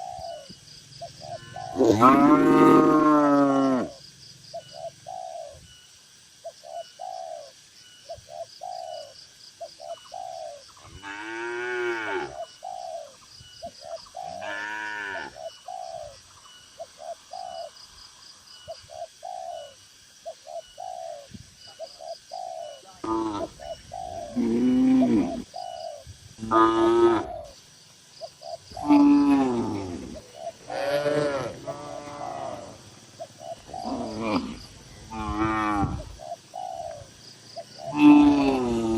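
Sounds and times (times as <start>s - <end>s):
cattle mooing: 1.4s - 3.9s, 30.7s - 32.8s.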